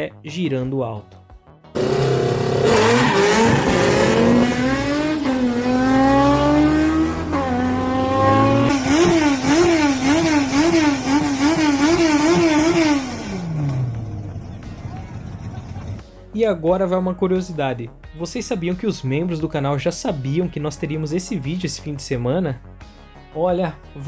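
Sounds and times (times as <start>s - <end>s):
car engine revving high: 1.8s - 14.6s.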